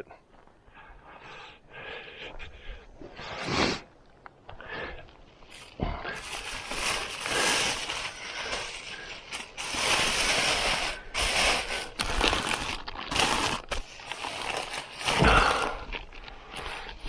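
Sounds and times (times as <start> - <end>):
camp gear rustling and clattering: 5.1 - 17.0.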